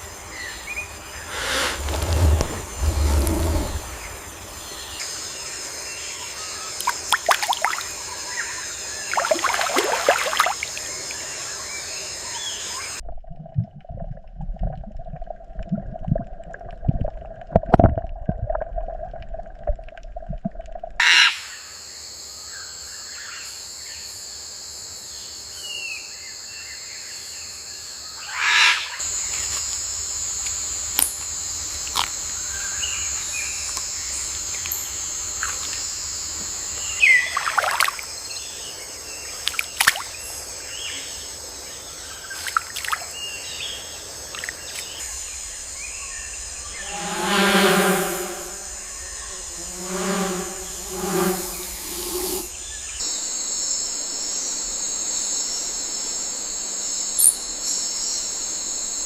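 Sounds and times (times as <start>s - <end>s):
low thumps: 1.2s - 4.3s
steady tone: 46.6s - 52.5s.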